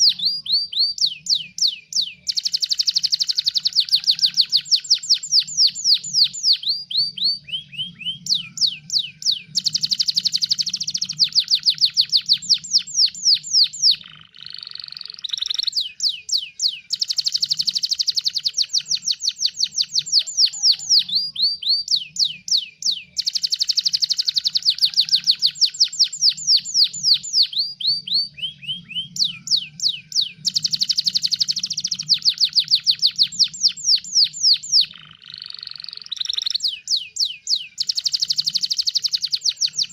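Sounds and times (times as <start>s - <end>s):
canary singing rapid trills: 0.0s - 39.9s.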